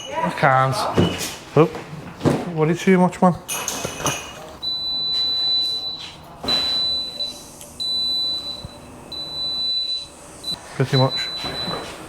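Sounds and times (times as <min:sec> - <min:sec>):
high-pitched electronic beep: 0:04.7 - 0:11.8.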